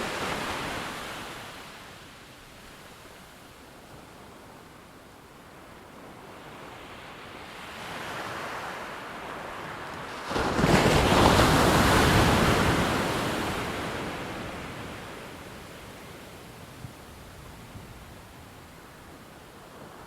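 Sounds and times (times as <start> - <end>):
ocean wave breaking: 10.0 - 15.2.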